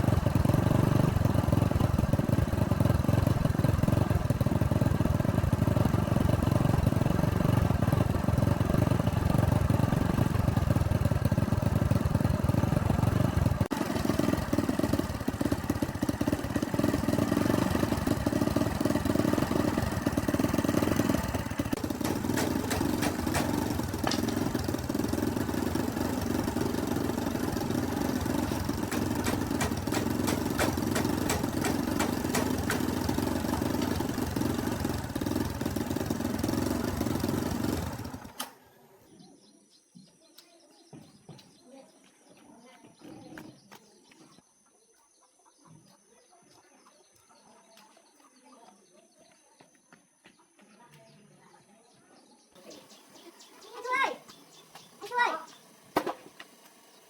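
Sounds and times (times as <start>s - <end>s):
old tractor engine running: 0.0s - 38.7s, 52.6s - 57.0s.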